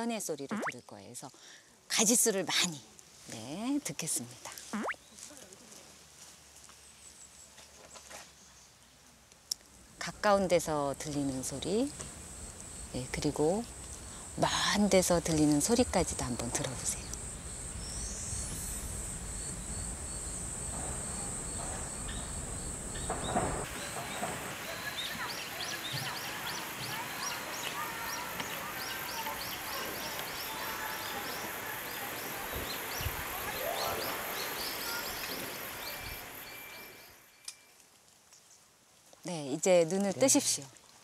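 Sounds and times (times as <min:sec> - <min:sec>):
small birds chirping: 0:21.1 - 0:37.2.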